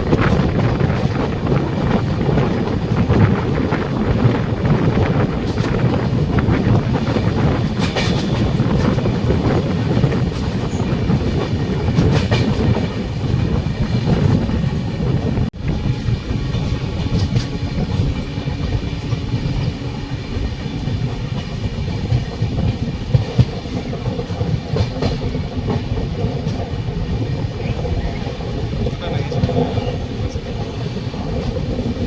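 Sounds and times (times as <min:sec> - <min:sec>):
wheels clicking over rail joints: 0:00.0 - 0:14.9
train rumbling: 0:00.0 - 0:32.0.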